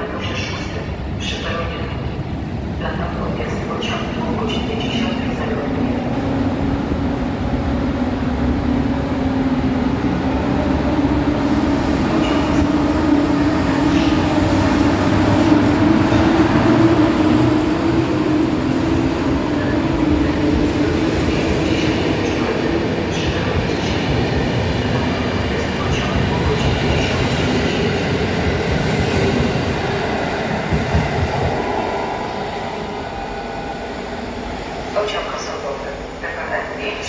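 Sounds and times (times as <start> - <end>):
train wheels rumbling: 8.4 - 35.6.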